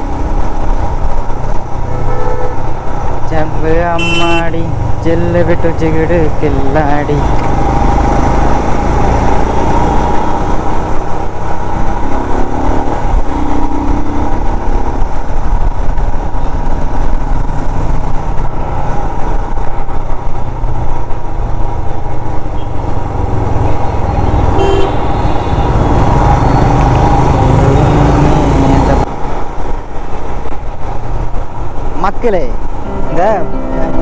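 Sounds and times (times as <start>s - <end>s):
motorcycle engine rumbling: 0.0s - 34.0s
vehicle horns tooting: 1.8s - 2.8s, 3.9s - 4.8s, 24.5s - 25.8s.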